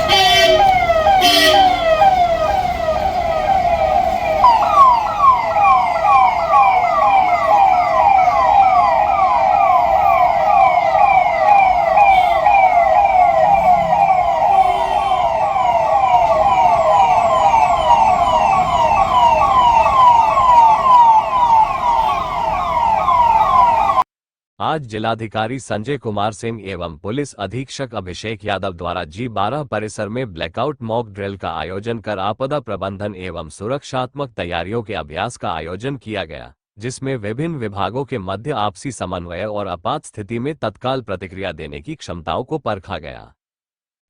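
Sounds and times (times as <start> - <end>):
electronic siren yelping: 0.0 - 24.0.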